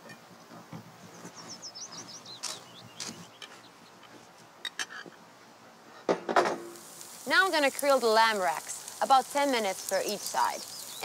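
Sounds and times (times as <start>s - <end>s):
songbird singing: 0.0s - 4.2s, 6.8s - 11.0s
faint background noise: 0.0s - 11.0s.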